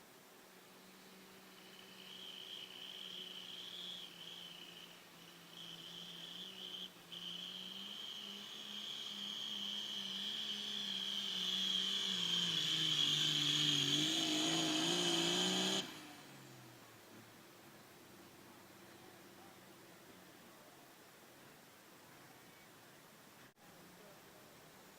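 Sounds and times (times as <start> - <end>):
turbo whining: 0.7 - 16.8
diesel tractor engine under load: 1.0 - 17.1.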